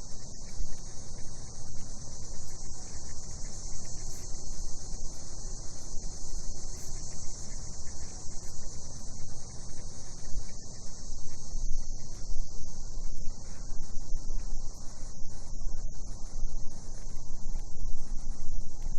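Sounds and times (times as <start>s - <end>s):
cicadas buzzing: 0.1s - 12.2s.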